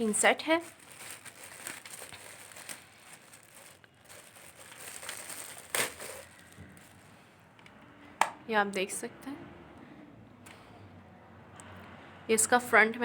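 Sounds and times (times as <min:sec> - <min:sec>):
packaging crinkling and rustling: 0:00.0 - 0:07.2.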